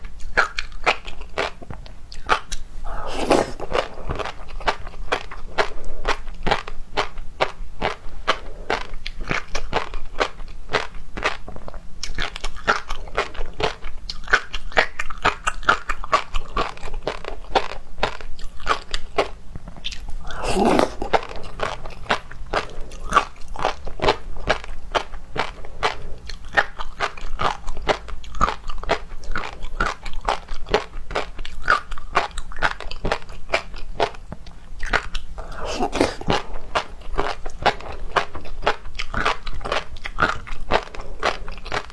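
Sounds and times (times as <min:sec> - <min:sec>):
chewing and biting: 0:00.1 - 0:41.9
wet mouth clicks: 0:02.1 - 0:04.8, 0:19.7 - 0:23.8, 0:34.8 - 0:37.8.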